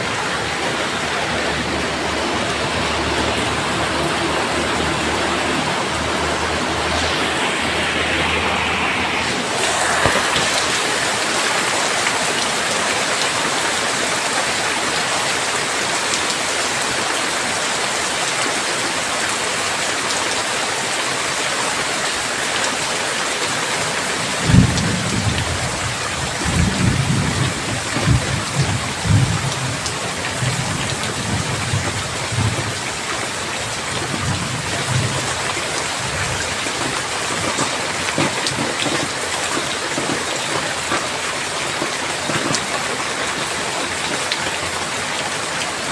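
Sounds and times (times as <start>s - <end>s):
heavy rain falling: 0.0s - 45.9s
thunder clap and rolling rumbles: 24.3s - 41.2s.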